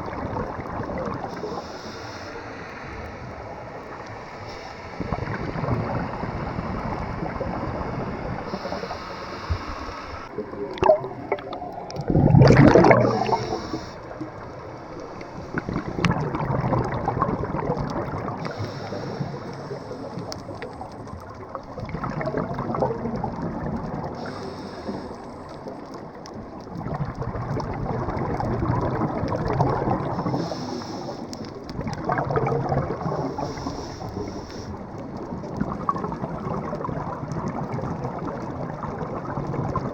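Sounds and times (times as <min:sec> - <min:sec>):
water sloshing and gurgling: 0:00.0 - 0:39.9
loud water splash: 0:10.4 - 0:13.8.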